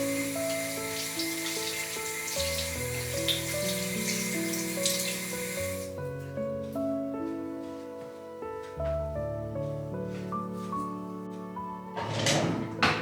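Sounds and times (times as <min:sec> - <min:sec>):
tap water running into sink: 0:00.0 - 0:05.9
soft background music: 0:00.0 - 0:13.0.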